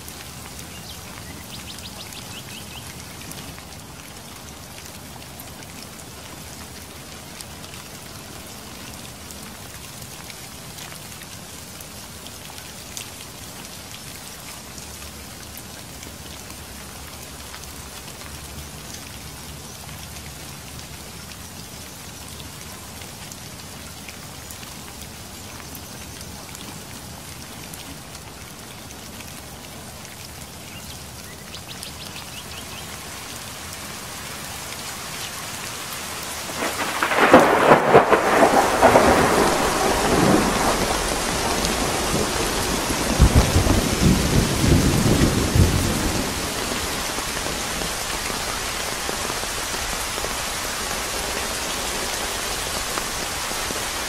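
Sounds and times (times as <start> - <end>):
rain falling: 0.0 - 54.0
thunder clap rumbling: 36.5 - 48.0.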